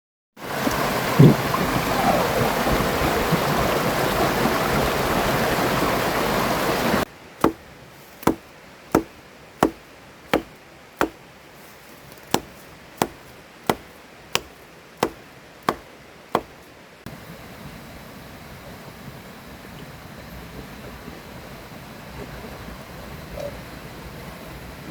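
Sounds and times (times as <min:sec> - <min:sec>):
rushing river water: 0:00.4 - 0:15.8
wood being chopped: 0:07.4 - 0:11.2, 0:12.0 - 0:16.6.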